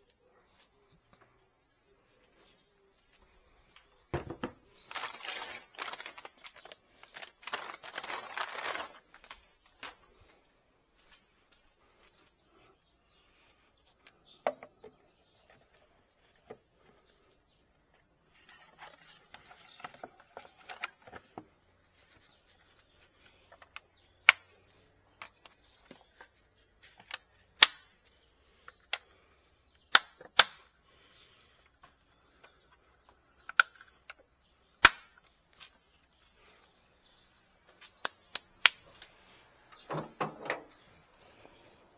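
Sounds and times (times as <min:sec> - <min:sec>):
rustling: 0:04.7 - 0:12.4.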